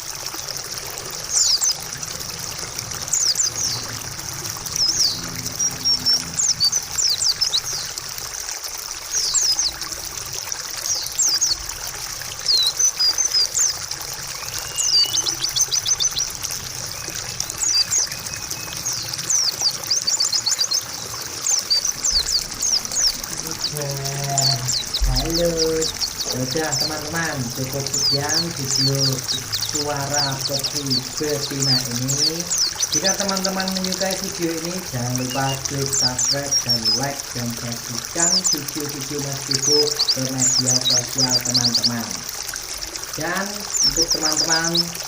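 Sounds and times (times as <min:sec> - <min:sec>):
running water trickling: 0:00.0 - 0:45.0
bird high chirps: 0:12.5 - 0:16.3, 0:16.9 - 0:34.3.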